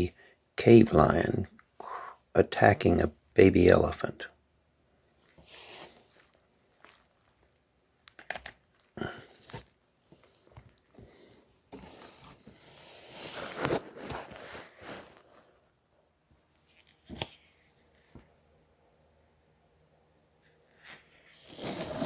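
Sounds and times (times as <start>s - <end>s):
handling rustling and scraping: 5.2s - 18.5s, 20.4s - 22.0s.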